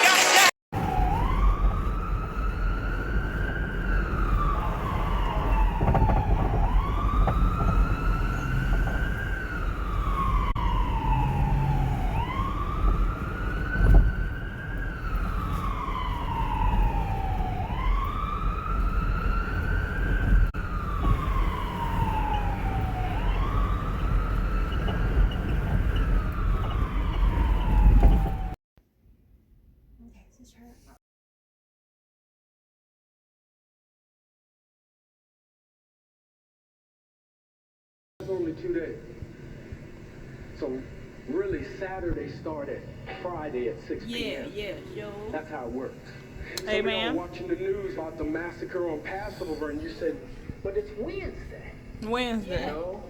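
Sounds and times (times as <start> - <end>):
emergency vehicle siren wailing: 0.0 - 28.6, 42.9 - 53.0.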